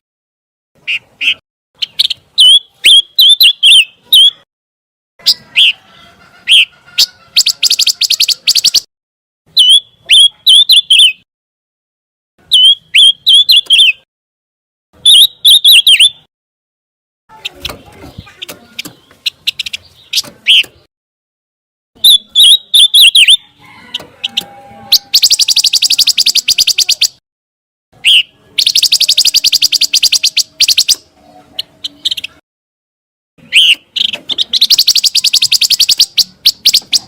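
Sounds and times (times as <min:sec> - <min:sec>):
bird chirping: 0:00.8 - 0:04.5, 0:05.2 - 0:08.9, 0:09.5 - 0:11.2, 0:12.4 - 0:14.1, 0:15.0 - 0:16.3, 0:17.3 - 0:20.9, 0:22.0 - 0:27.2, 0:28.0 - 0:32.4, 0:33.4 - 0:37.0
bird rattling trill: 0:24.2 - 0:27.2, 0:28.6 - 0:31.0, 0:33.6 - 0:37.0.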